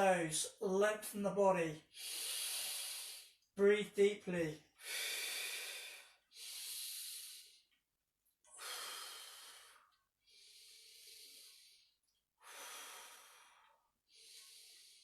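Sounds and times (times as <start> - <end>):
person breathing deeply: 1.9 - 3.4, 4.8 - 7.6, 8.6 - 15.0.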